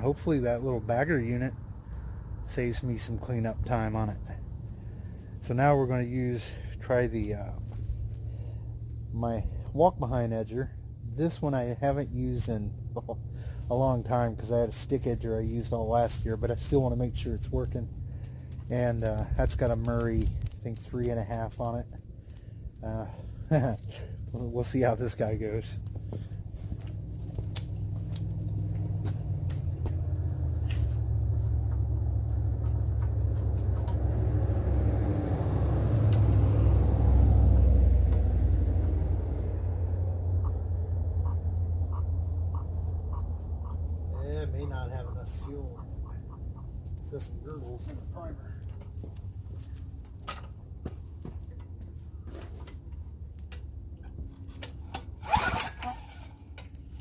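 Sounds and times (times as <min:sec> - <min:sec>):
engine rumbling: 0:00.0 - 0:57.0
pull-start rope turning engine over: 0:54.4 - 0:57.0.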